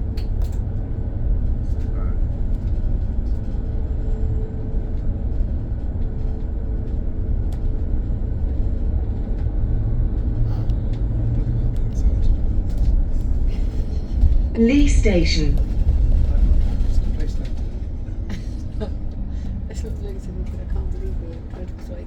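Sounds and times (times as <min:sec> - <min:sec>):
bus rumbling in motion: 0:00.0 - 0:22.0.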